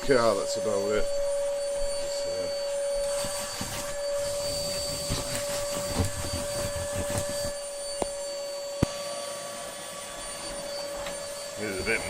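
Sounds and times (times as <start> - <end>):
vacuum cleaner motor whine: 0.0 - 12.0
vacuum nozzle rubbing and knocking: 3.0 - 8.2.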